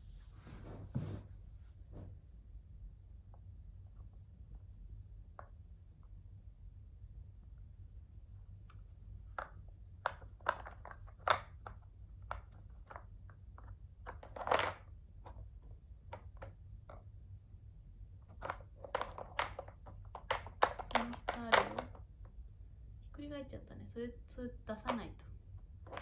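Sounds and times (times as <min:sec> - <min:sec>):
cat pawing at puzzle toy: 0:08.7 - 0:17.1, 0:18.3 - 0:22.0, 0:25.8 - 0:26.0.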